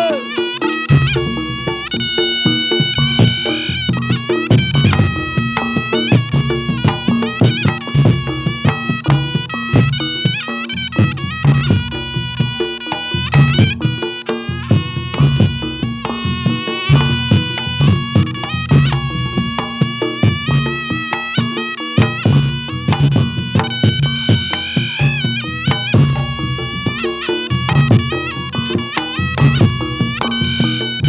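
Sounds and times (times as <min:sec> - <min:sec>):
drum beats: 0:00.0 - 0:31.0
nasal double-reed trumpet melody: 0:00.0 - 0:31.0.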